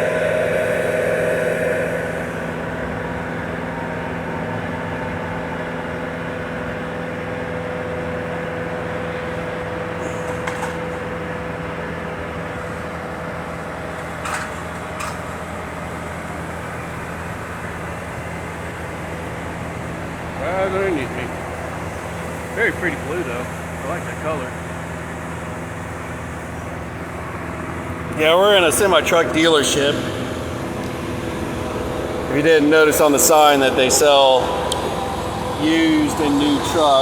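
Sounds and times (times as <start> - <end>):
hydraulic whine: 0.0 - 6.2, 16.2 - 37.0
aerial lift engine and hydraulic hum: 0.0 - 37.0.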